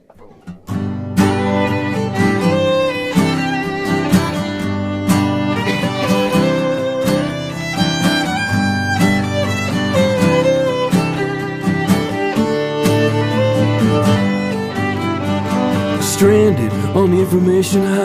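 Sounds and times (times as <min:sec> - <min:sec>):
acoustic guitars strumming: 0:00.0 - 0:18.0
violin melody: 0:00.7 - 0:18.0.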